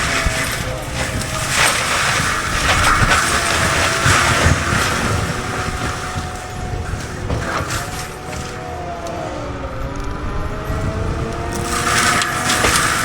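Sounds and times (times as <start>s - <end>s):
forestry mulcher machine roar: 0.0s - 13.0s
wood cracking and crunching: 0.0s - 13.0s.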